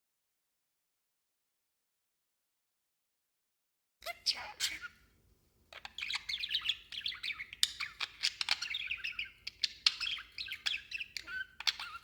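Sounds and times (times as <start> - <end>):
budgerigar chattering: 4.0 - 5.0, 5.8 - 12.0.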